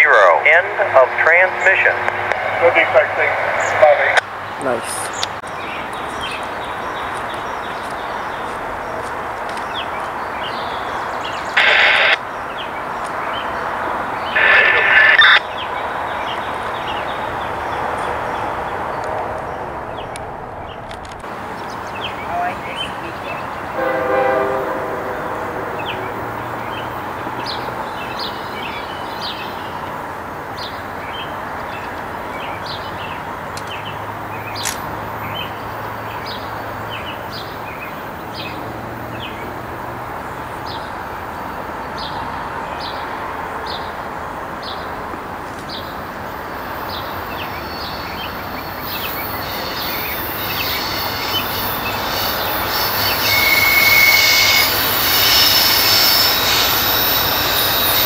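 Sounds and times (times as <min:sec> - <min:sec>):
train wheels rumbling on track: 0:00.0 - 0:11.6, 0:15.6 - 0:58.0
high hiss: 0:11.6 - 0:12.2, 0:14.4 - 0:15.4, 0:48.4 - 0:58.0.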